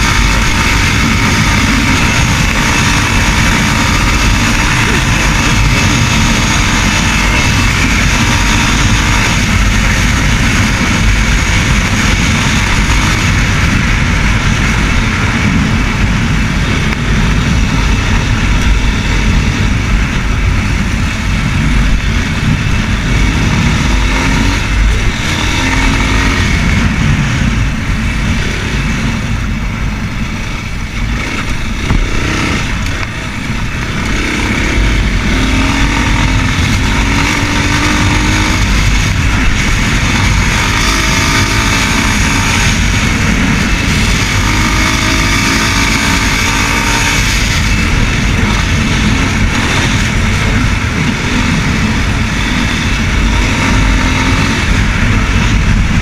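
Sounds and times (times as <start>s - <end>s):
motorcycle engine running: 0.0s - 56.0s
wind on microphone: 0.0s - 56.0s.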